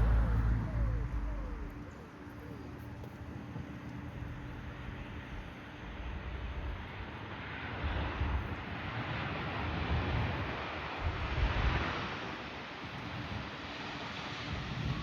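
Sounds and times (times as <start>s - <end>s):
jet airliner engine: 0.0s - 15.0s
wind rumbling on microphone: 0.0s - 15.0s.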